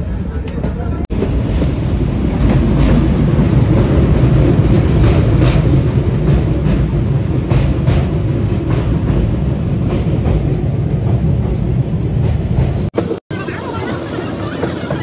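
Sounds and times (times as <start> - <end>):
train wheels rumbling on rails: 0.0 - 15.0
wheels clacking: 12.6 - 15.0.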